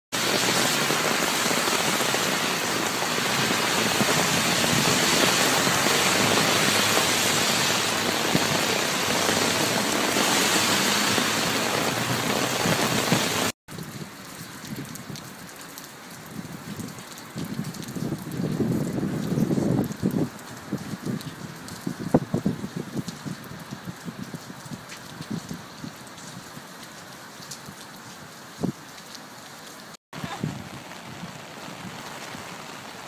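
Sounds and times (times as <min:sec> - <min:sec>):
heavy rain on wet street: 0:00.1 - 0:33.0
car tyres swishing through water: 0:00.2 - 0:13.6.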